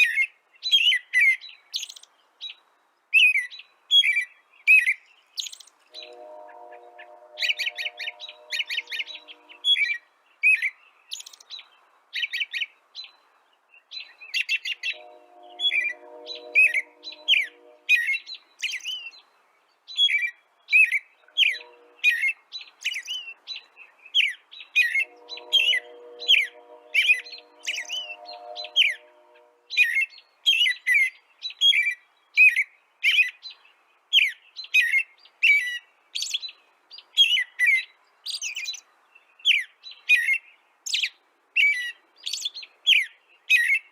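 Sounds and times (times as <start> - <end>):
songbird chirping: 4.4 - 11.9, 13.1 - 19.3, 20.8 - 29.9.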